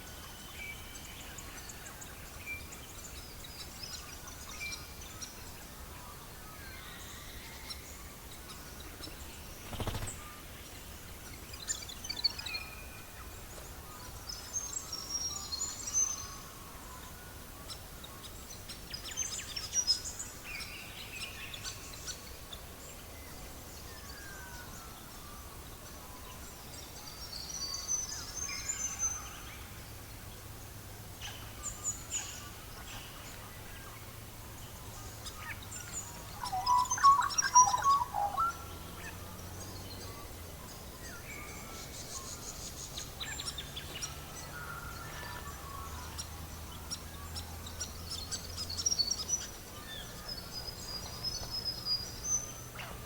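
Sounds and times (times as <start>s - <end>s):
steady low hiss: 0.0s - 53.0s
birds chirping: 8.4s - 10.4s, 31.2s - 53.0s.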